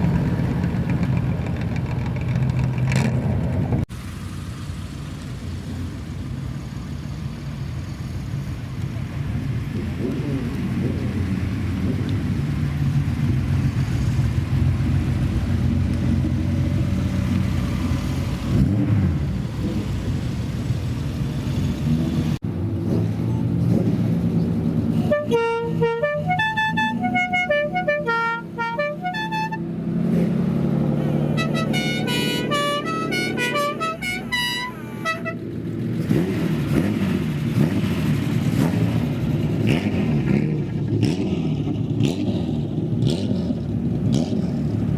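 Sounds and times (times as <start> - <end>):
car engines rumbling: 0.0 - 44.9
musical car horn tune: 25.0 - 29.6, 31.3 - 35.4.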